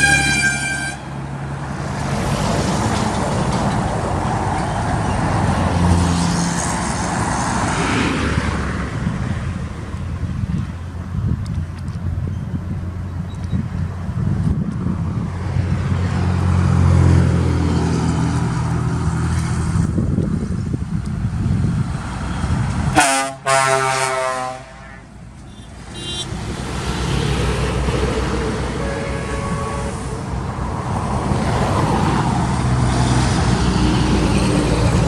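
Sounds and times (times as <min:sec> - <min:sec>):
truck air horn blast: 0:00.0 - 0:01.2, 0:22.9 - 0:26.4, 0:28.4 - 0:30.3
truck diesel engine rumbling: 0:00.0 - 0:35.0
faint horn tone: 0:23.0 - 0:26.3, 0:28.8 - 0:30.2.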